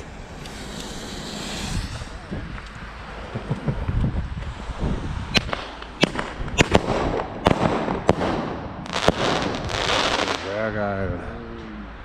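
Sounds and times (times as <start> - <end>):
fireworks crackling: 0.0 - 3.2, 5.4 - 10.7
fireworks bangs: 5.4 - 10.7.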